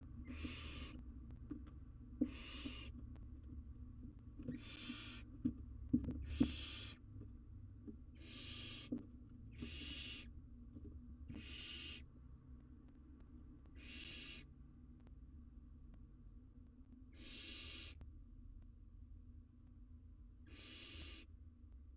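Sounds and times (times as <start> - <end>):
faint knocks and scrapes: 5.3 - 8.1.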